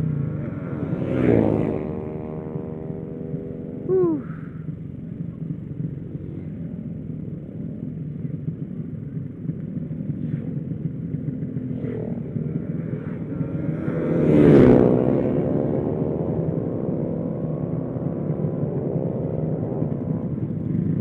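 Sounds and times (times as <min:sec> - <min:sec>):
motorcycle engine running: 0:00.0 - 0:21.0
road and wind noise: 0:00.0 - 0:21.0.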